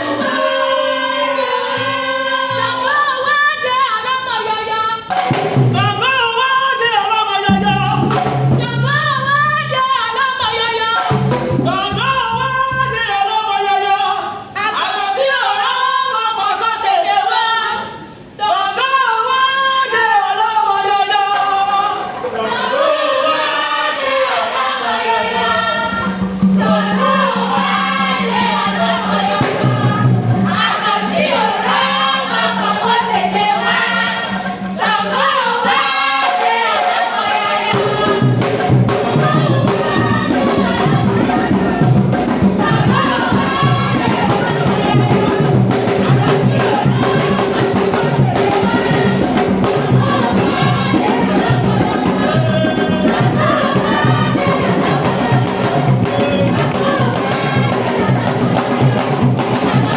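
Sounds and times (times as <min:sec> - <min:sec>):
voices singing in chorus: 0:00.0 - 0:59.9
low rhythmic beat: 0:25.8 - 0:59.9.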